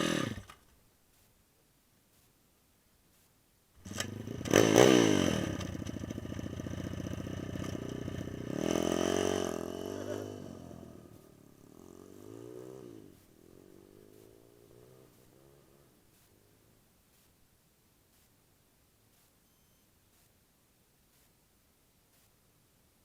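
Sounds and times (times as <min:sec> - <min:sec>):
pit bike engine revving: 0:00.0 - 0:00.6, 0:03.8 - 0:16.5.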